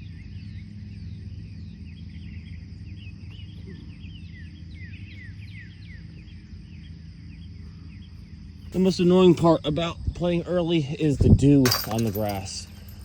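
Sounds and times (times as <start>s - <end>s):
birds chirping: 0.0s - 10.0s
steady low hum: 0.0s - 13.0s.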